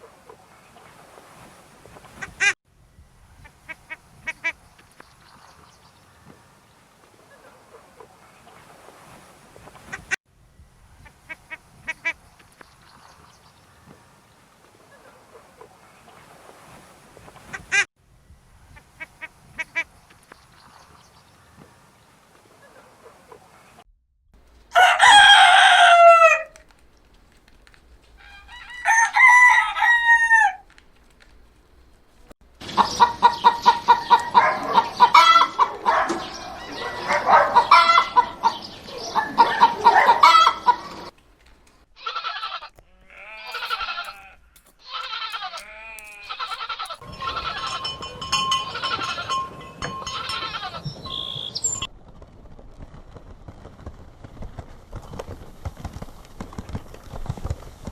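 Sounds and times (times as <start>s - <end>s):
rooster crowing: 24.7s - 26.6s, 28.2s - 30.6s, 34.8s - 35.8s, 36.4s - 38.5s, 39.4s - 40.9s
chickens clucking and squawking: 32.7s - 41.1s.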